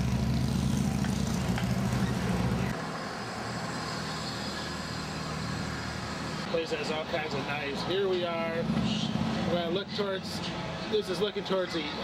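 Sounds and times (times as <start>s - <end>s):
steady traffic noise: 0.0s - 12.0s
vehicle engine humming: 0.0s - 12.0s.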